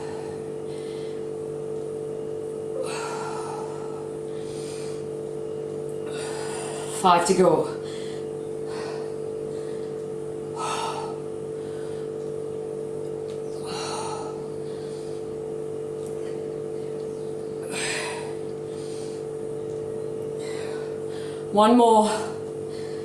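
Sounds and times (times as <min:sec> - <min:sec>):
low electrical hum: 0:00.0 - 0:23.0
person exhaling heavily: 0:13.6 - 0:15.2.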